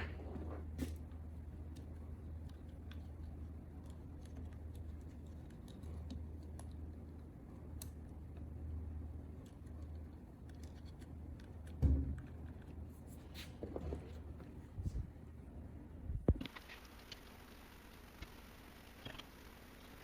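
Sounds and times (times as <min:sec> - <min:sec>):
small parts clicking and scratching: 0:00.0 - 0:14.6
low steady hum: 0:00.0 - 0:20.0
dull thump: 0:11.8 - 0:12.2.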